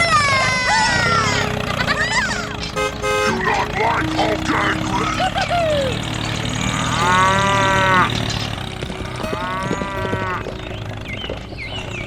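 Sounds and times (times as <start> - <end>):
steady low hum: 0.0 - 12.0
cow mooing: 2.8 - 10.6.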